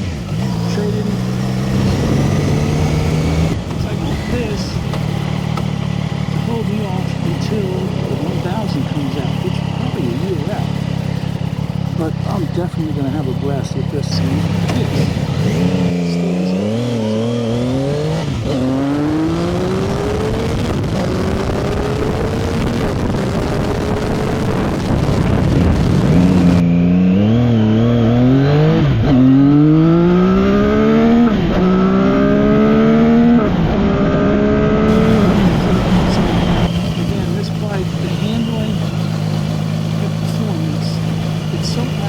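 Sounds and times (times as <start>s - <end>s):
motorcycle engine accelerating: 0.0s - 42.0s
wind rushing: 17.5s - 26.6s, 33.3s - 37.1s.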